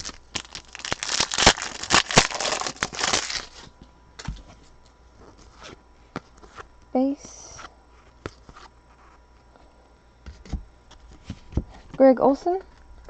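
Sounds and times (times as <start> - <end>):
foil wrapper crinkling and tearing: 0.0 - 3.7.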